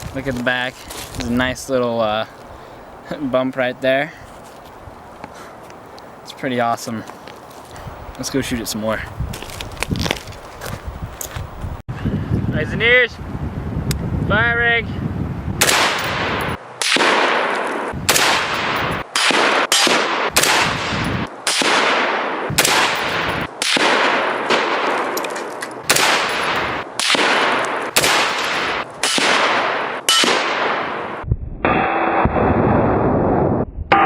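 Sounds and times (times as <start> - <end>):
rifle gunshots echoing: 15.6 - 25.2, 25.8 - 31.2.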